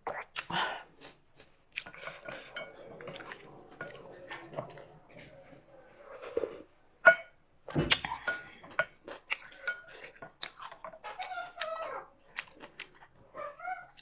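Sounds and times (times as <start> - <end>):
cutlery clinking against dishes: 1.9 - 11.8.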